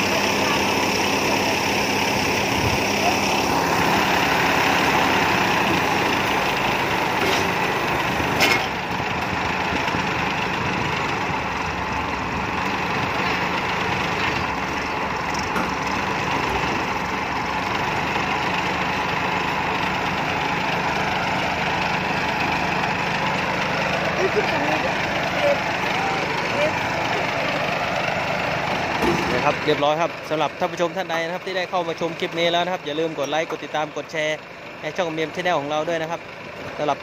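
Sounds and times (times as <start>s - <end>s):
combine harvester engine running: 0.0s - 37.0s.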